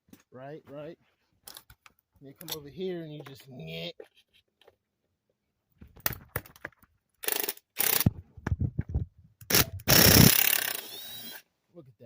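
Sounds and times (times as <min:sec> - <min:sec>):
tools clicking and knocking on metal: 0:01.4 - 0:03.5.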